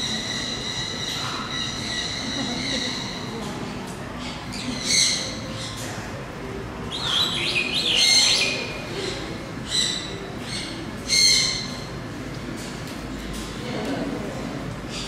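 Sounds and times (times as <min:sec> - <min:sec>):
birds calling: 0:00.0 - 0:03.4, 0:04.1 - 0:12.2
steady background hum: 0:00.0 - 0:15.0.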